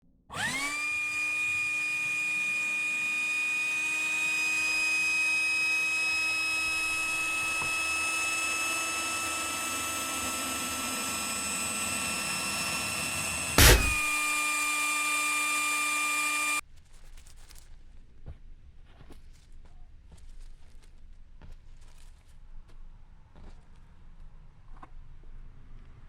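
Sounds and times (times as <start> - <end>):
electric air pump whining: 0.3 - 16.6.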